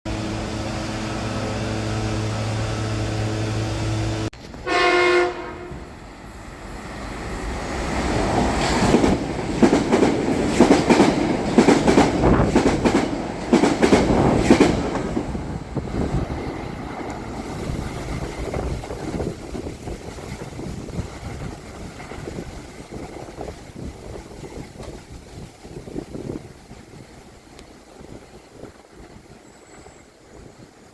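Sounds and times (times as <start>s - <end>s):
train horn blast: 0.1s - 6.0s
train rumbling past: 0.1s - 30.9s.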